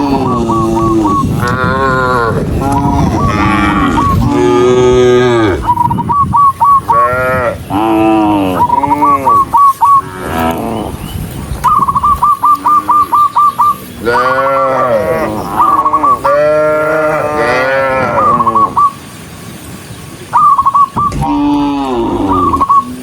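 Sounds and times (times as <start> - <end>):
cattle mooing: 0.0 - 5.8, 6.8 - 11.0, 14.0 - 18.8, 21.1 - 22.8.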